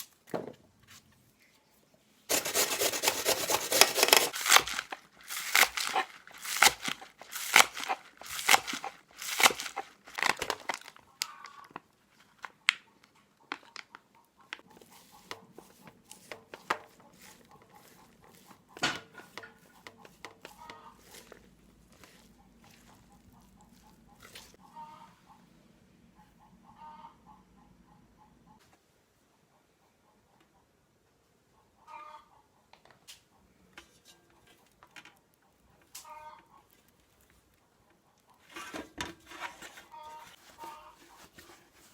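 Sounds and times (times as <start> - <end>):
rhythmic scraping strokes: 2.3 - 4.4
chickens clucking faintly: 11.0 - 41.9.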